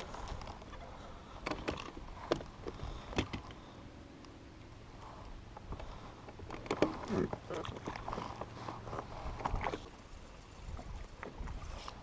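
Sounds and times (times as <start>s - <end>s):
faint steady hum: 0.0s - 12.0s
gear knocking against kayak: 1.4s - 3.6s.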